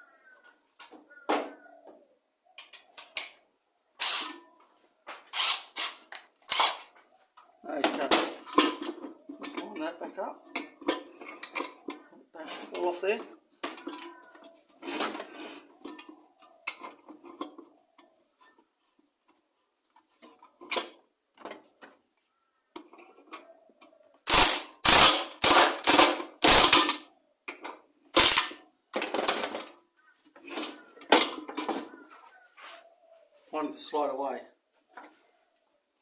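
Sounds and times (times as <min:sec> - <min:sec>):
air impact wrench rattling: 0:04.0 - 0:04.4, 0:05.3 - 0:06.9, 0:24.3 - 0:27.0, 0:28.2 - 0:29.7.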